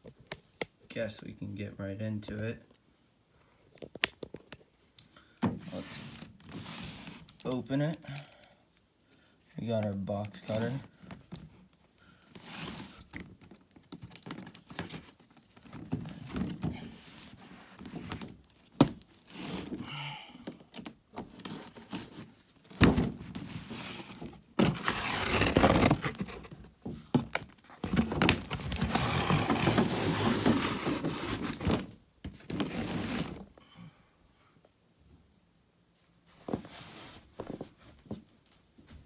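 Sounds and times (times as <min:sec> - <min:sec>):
box cutter scraping cardboard: 0:12.4 - 0:13.1, 0:23.5 - 0:26.7, 0:27.8 - 0:33.5.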